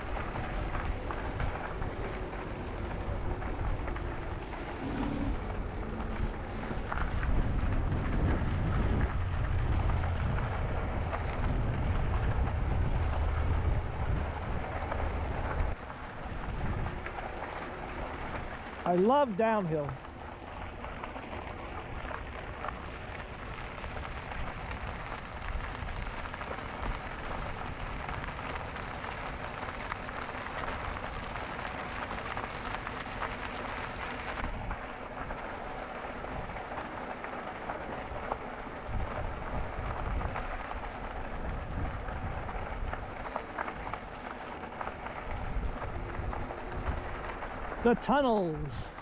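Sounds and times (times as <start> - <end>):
wind rushing over microphone: 0.0 - 17.2.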